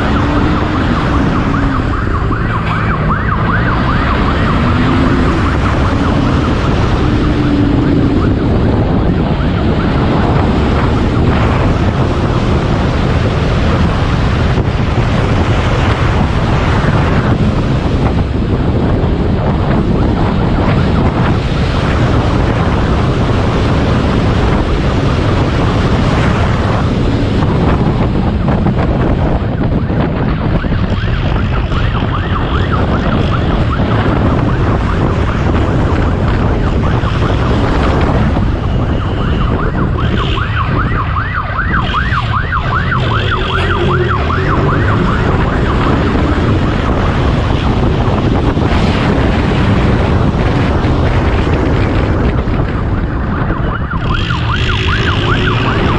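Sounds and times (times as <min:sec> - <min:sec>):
police siren yelping: 0:00.0 - 0:21.2, 0:30.2 - 0:49.3, 0:52.3 - 0:55.9
motorcycle engine at high speed: 0:00.0 - 0:55.9
wind rush: 0:00.0 - 0:55.9.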